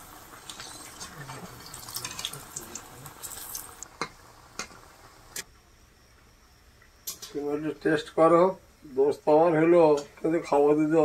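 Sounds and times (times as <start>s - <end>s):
food frying in hot oil: 0.0s - 5.4s.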